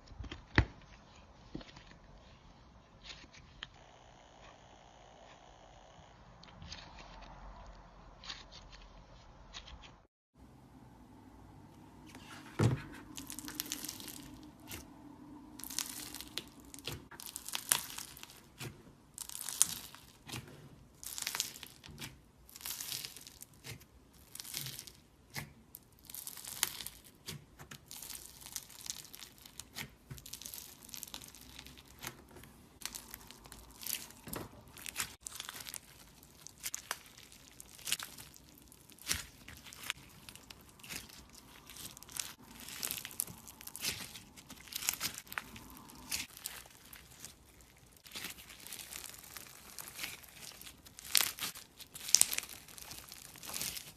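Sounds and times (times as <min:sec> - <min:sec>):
slime crackling and popping: 0:13.0 - 0:53.9.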